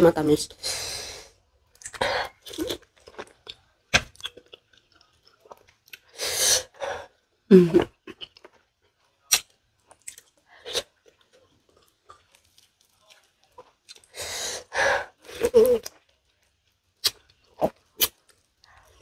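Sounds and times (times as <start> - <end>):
biting and chewing fruit: 1.8 - 6.1, 7.9 - 14.1.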